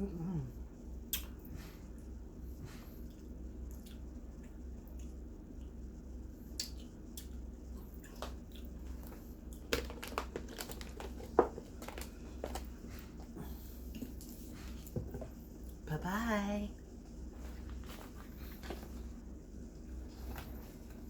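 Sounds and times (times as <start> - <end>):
steady low hum: 0.0 - 21.0
chewing and mouth clicks: 1.1 - 1.4, 3.0 - 5.8, 6.5 - 12.7
food wrapper crinkles: 8.2 - 12.7.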